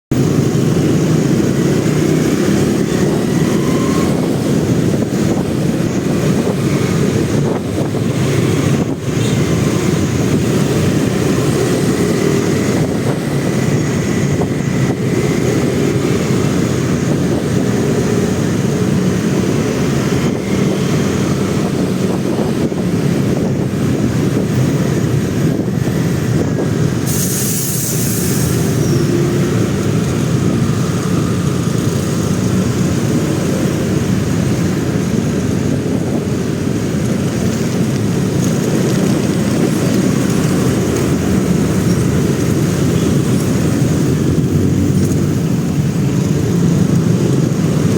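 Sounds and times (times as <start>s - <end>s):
motorcycle riding in traffic: 0.1s - 47.9s
sharp hiss: 27.0s - 28.9s.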